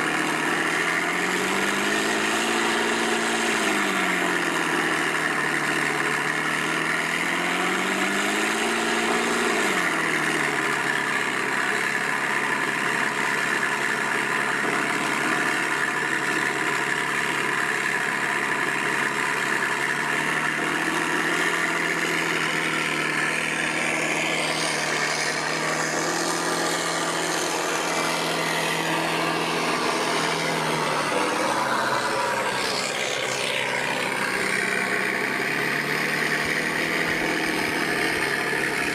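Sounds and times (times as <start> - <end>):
simulated engine idling: 10.4 - 38.9
high whine: 19.7 - 38.9.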